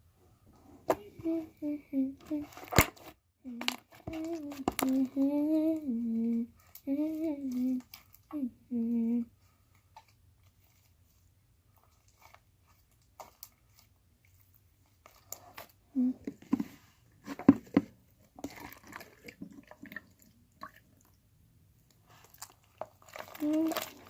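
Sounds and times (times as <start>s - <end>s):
slime crackling and squelching: 9.8s - 15.8s, 22.0s - 24.0s.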